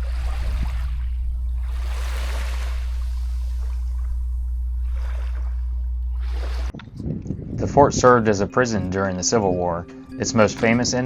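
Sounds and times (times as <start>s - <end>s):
water washing and trickling: 0.0s - 6.7s
steady low hum: 0.0s - 8.6s.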